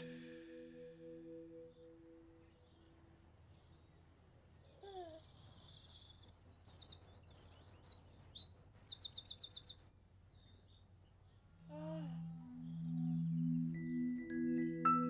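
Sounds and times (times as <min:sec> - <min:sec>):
songbird chirping and trilling: 0:00.0 - 0:15.0.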